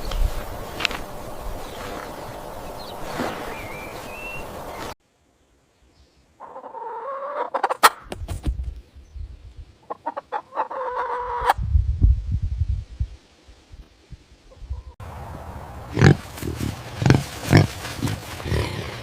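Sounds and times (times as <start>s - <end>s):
chicken calling: 6.4s - 8.0s, 9.8s - 11.6s.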